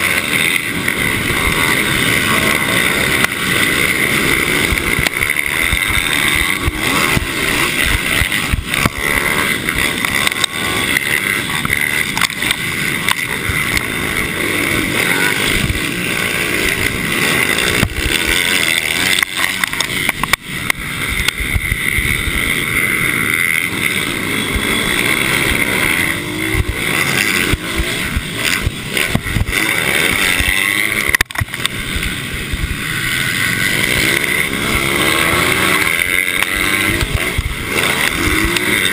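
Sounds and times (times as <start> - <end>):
racing motorcycle engines revving: 0.0 - 38.9
steady high whine: 0.0 - 38.9.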